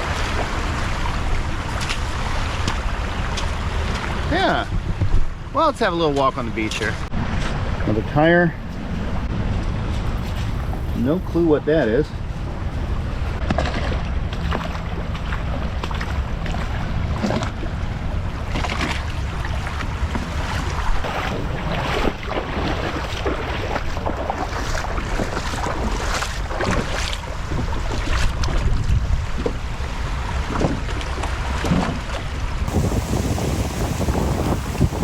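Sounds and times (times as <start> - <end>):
waves washing on shore: 0.0 - 5.0, 12.1 - 35.0
wind buffeting microphone: 0.0 - 5.6, 7.0 - 35.0.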